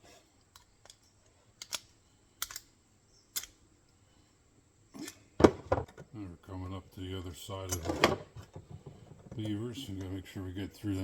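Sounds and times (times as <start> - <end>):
steel trap parts clicking: 0.5 - 3.6.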